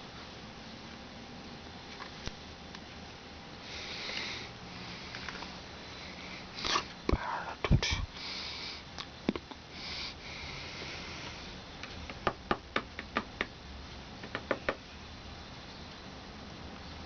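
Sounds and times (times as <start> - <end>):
faint low hum: 0.0 - 17.0
sharp irregular knocks: 14.2 - 14.8.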